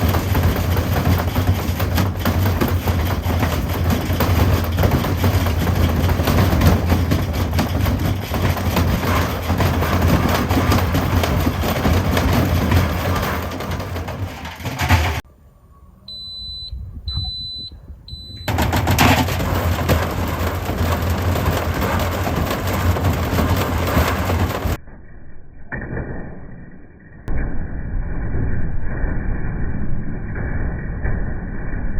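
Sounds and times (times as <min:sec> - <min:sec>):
washing machine banging and rattling: 0:00.0 - 0:15.3, 0:18.2 - 0:24.8
low hum: 0:00.0 - 0:31.9
quiet steady tone: 0:15.3 - 0:18.5
short high electronic beeps: 0:16.1 - 0:18.5.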